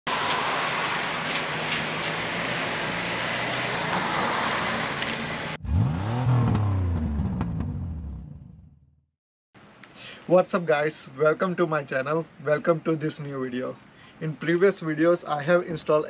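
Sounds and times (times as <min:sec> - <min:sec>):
car revving sound effect: 0:02.2 - 0:08.8.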